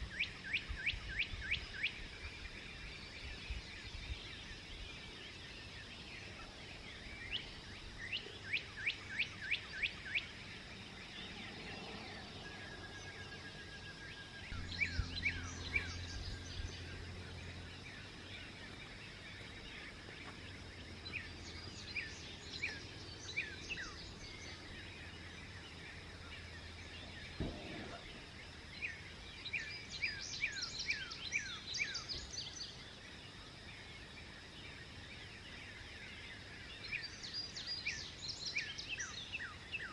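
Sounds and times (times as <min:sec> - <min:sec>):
songbirds chirping: 0:00.0 - 0:39.9
low steady hum: 0:10.4 - 0:29.8
outdoor hiss: 0:22.2 - 0:30.3.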